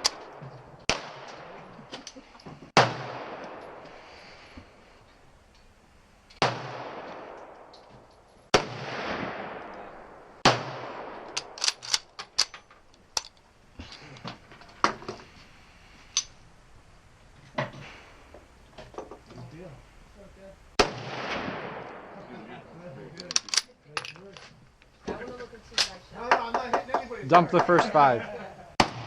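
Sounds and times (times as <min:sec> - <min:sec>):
sharp cracks and clicks: 0:11.2 - 0:13.4.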